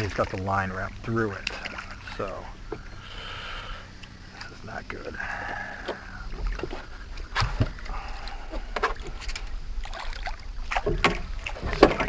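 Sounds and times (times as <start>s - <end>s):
water splashing against boat: 0.0s - 12.0s
sharp knocks on boat: 5.8s - 12.0s.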